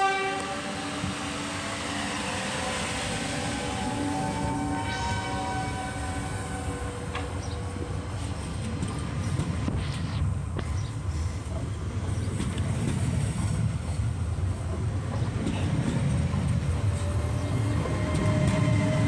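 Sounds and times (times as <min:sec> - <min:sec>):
train rumbling on track: 0:00.0 - 0:19.0
wheels clickety-clack: 0:08.2 - 0:10.8, 0:11.4 - 0:14.0, 0:14.7 - 0:19.0.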